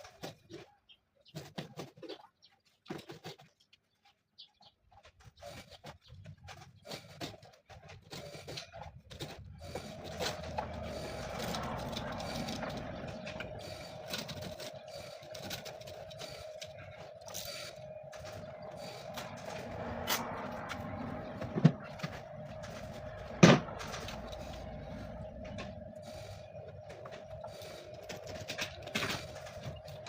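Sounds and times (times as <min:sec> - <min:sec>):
machine humming: 0:09.5 - 0:30.0.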